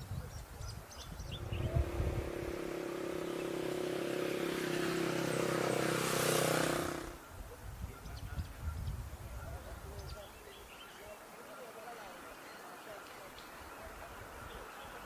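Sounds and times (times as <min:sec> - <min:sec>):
motor engine humming: 0:01.4 - 0:07.2.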